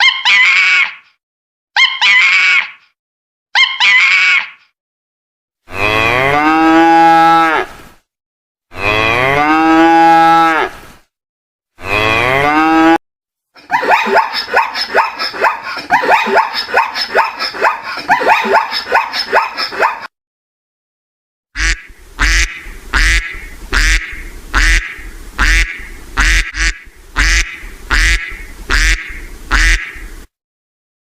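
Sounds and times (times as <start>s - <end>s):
cow mooing: 5.7s - 7.7s, 8.7s - 10.7s, 11.8s - 13.0s
short repeated animal calls: 21.6s - 30.2s.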